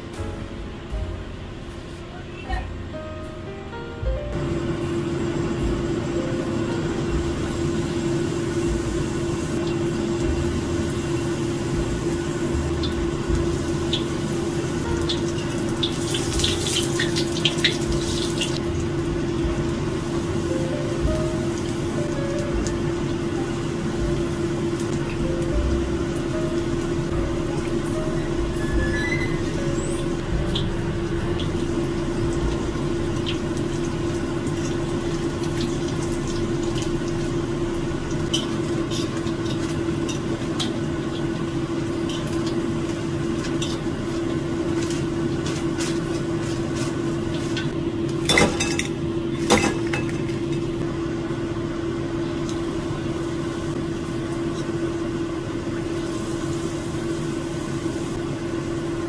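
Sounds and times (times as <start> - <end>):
steady hum: 0.0 - 59.0
fritters deep-frying in oil: 6.9 - 48.2.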